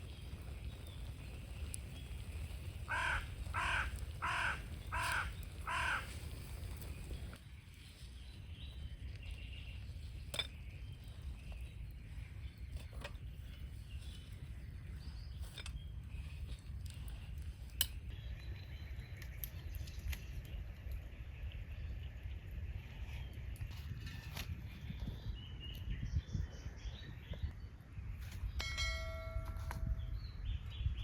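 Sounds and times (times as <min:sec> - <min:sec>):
faint bird calls: 0:02.8 - 0:07.2.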